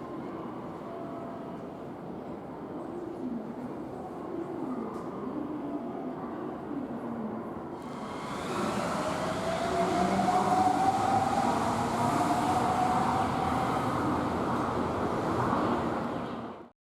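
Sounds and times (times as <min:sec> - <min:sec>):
rising whine: 0:07.8 - 0:14.4.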